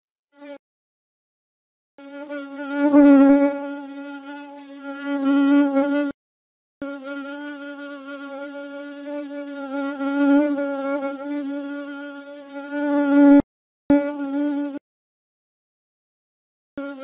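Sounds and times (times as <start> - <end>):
fly buzzing: 0.4 - 0.6, 2.0 - 6.2, 6.8 - 14.8, 16.8 - 17.0.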